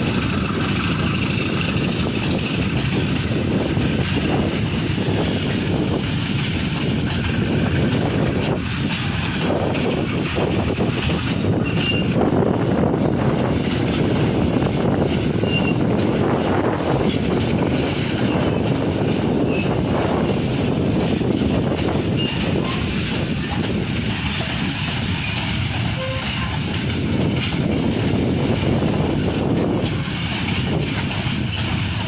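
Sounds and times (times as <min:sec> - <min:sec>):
freight train wheels rumbling: 0:00.0 - 0:32.0
high wheel squeals: 0:11.5 - 0:12.2, 0:15.4 - 0:15.9.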